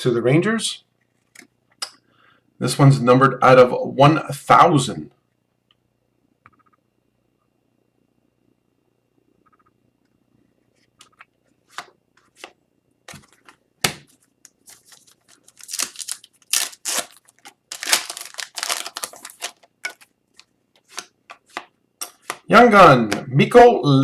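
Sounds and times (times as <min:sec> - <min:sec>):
trading cards rustling: 0:13.1 - 0:22.5.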